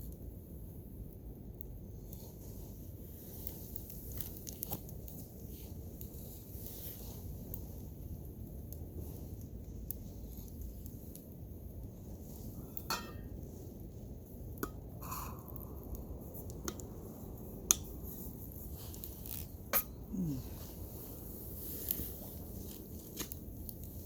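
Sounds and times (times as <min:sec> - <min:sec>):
low steady background noise: 0:00.0 - 0:24.0
metal cookware clinking: 0:12.9 - 0:13.3.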